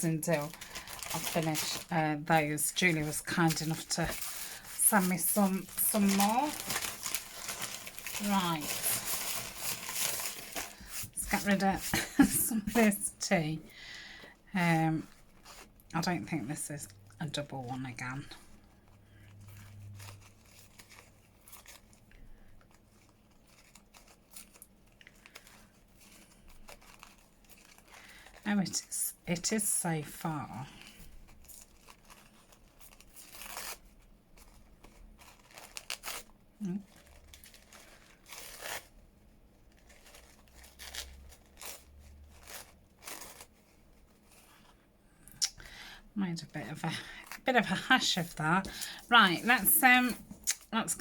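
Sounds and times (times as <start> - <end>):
paper rustling and crinkling: 0.0 - 13.0, 18.3 - 29.0, 30.0 - 44.8.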